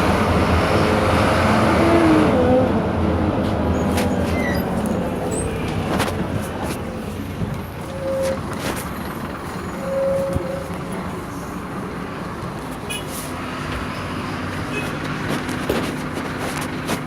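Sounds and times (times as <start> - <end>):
bus engine and road drone: 0.0 - 17.0
brief high squeal: 3.8 - 5.5, 9.8 - 10.7.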